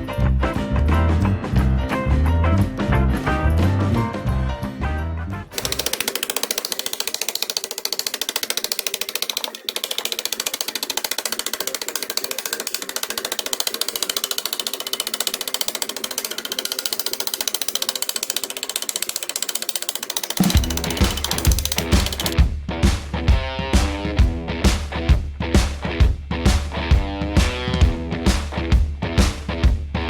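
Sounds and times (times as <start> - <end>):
metalworking tool rattling on steel: 5.6 - 22.4.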